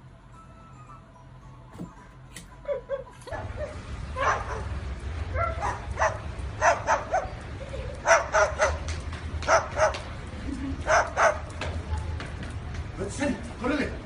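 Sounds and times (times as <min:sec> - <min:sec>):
dog barking in high-pitched yaps: 0:02.6 - 0:04.7, 0:05.3 - 0:07.4, 0:08.0 - 0:08.8, 0:09.5 - 0:10.0, 0:10.9 - 0:11.4.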